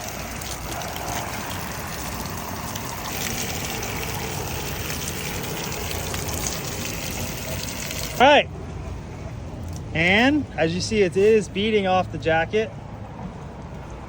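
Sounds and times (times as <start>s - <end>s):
water spraying on rain jacket: 0.0s - 8.3s.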